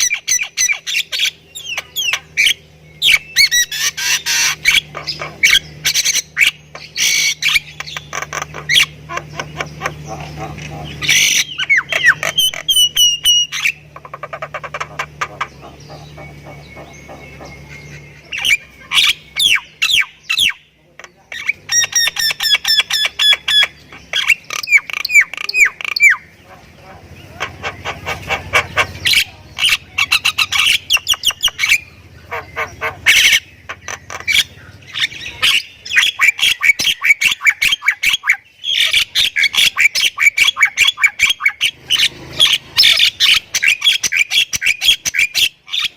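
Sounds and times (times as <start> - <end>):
myna bird singing: 0.0 - 45.9.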